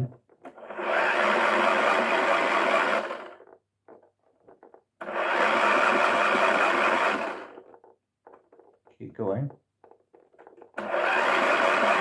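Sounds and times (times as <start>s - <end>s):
small electric motor running: 0.7s - 3.4s, 5.0s - 7.6s, 10.8s - 12.0s.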